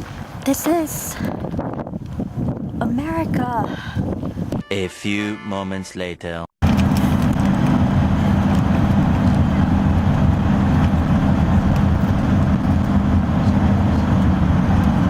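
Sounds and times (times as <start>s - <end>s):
road noise: 6.6s - 15.0s
vehicle engine drone: 6.6s - 15.0s.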